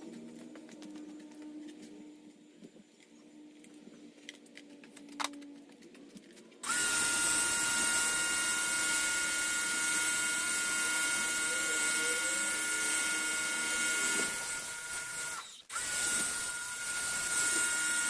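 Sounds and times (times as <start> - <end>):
electric tool motor whining: 6.6 - 18.0.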